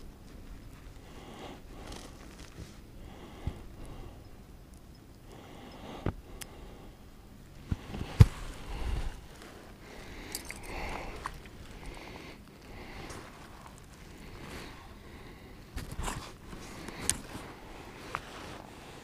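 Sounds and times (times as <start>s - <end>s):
wind rush: 8.0s - 9.3s.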